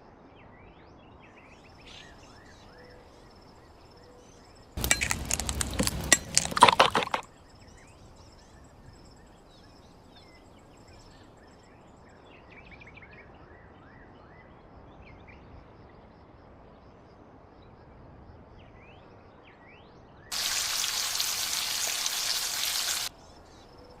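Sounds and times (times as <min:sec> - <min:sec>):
insect chirps: 0:01.6 - 0:11.7, 0:20.3 - 0:24.0
clinking and knocking: 0:04.8 - 0:07.3
steady hissing: 0:20.3 - 0:23.1.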